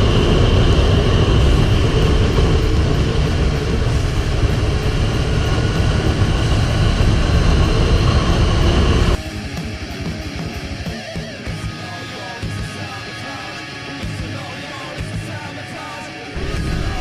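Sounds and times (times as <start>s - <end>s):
wind and road noise: 0.0s - 9.2s
motorcycle engine running: 0.0s - 13.0s.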